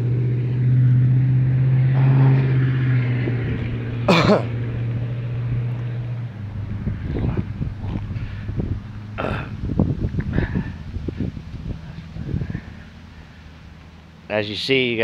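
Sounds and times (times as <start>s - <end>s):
low engine hum: 0.0s - 15.0s
person coughing: 4.1s - 4.5s.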